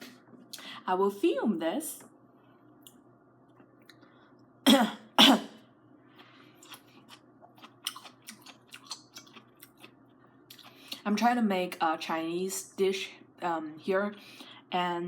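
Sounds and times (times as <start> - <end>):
person coughing: 4.7 - 5.6.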